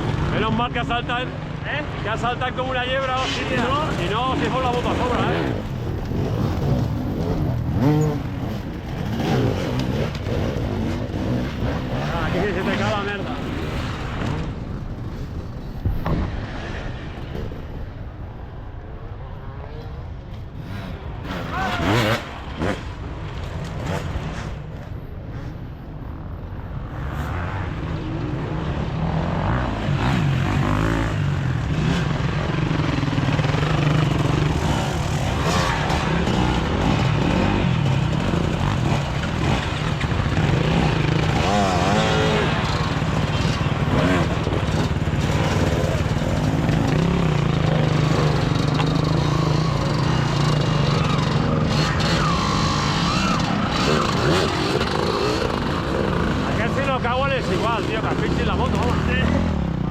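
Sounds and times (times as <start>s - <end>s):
motorcycle engine running: 30.0s - 56.6s.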